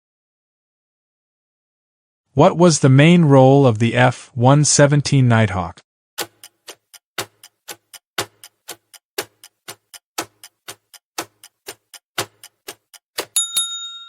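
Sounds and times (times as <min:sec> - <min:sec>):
timer ticking like a clock: 0:06.2 - 0:13.7.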